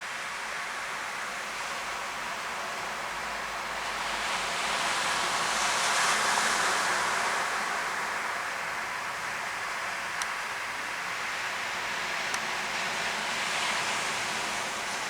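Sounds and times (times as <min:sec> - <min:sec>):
waves breaking on beach: 0:04.2 - 0:15.0.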